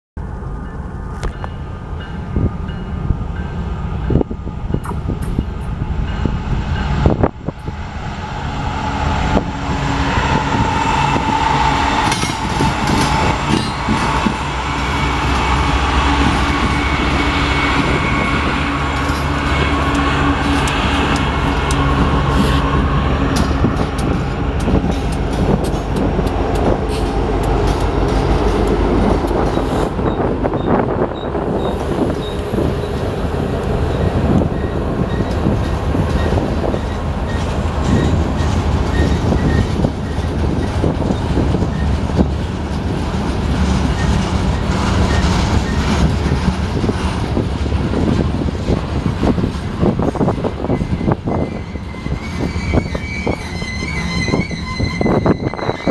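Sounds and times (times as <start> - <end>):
train wheels rumbling on rails: 0.2 - 55.9
wheels clicking over rail joints: 10.9 - 55.8
faint high squeaks: 50.6 - 55.9.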